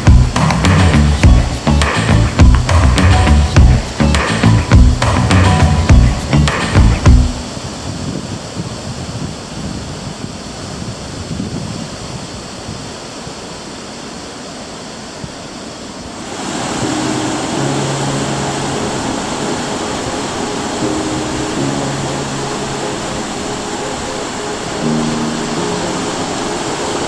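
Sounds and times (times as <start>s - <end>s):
held low tones: 0.0s - 7.4s
ocean waves breaking: 12.9s - 27.0s.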